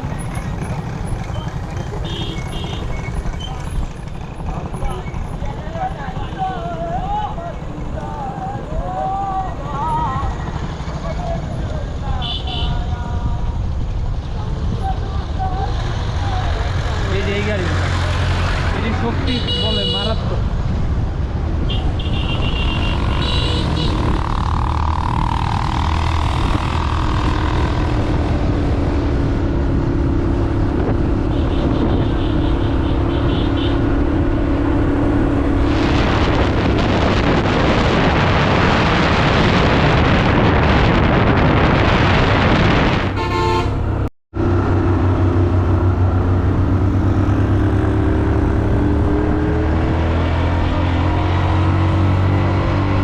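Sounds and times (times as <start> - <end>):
motorcycle engine running: 0.0 - 10.8
wind and road noise: 0.0 - 53.0.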